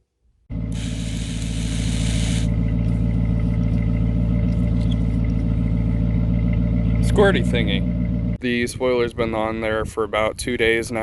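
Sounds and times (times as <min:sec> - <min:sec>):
car engine idling: 0:00.5 - 0:08.6.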